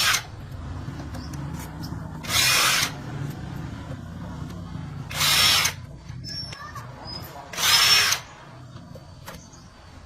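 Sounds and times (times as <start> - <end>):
power tool running: 2.2 - 3.4, 4.7 - 5.9, 7.5 - 8.4.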